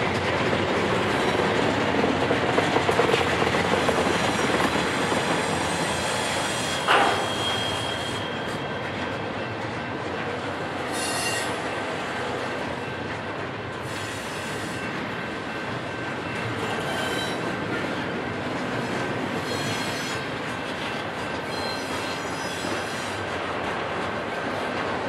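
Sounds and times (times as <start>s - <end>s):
steel wheels rumbling on rail: 0.0s - 25.0s
high-pitched wheel squeals: 5.7s - 8.8s, 10.9s - 11.8s, 16.8s - 17.5s, 19.4s - 20.2s, 21.4s - 23.2s.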